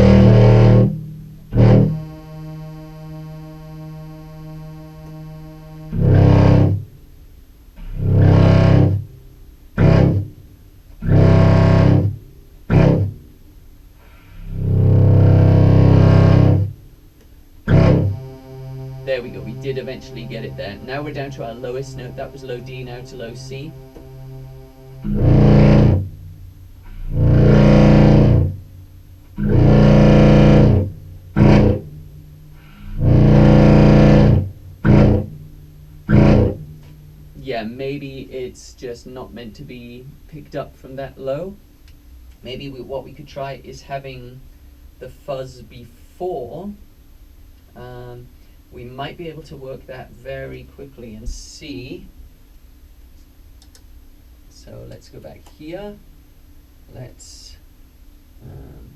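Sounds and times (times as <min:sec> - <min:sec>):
distorted low clarinet notes: 0:00.0 - 0:13.2, 0:14.2 - 0:38.6, 0:58.4 - 0:58.9.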